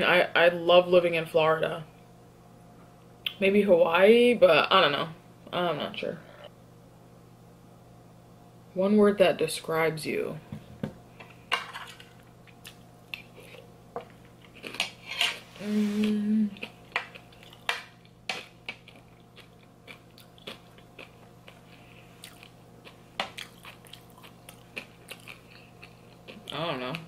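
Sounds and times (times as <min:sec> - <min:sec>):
person humming: 0:15.6 - 0:16.7
chewing mouth sounds: 0:16.6 - 0:26.6.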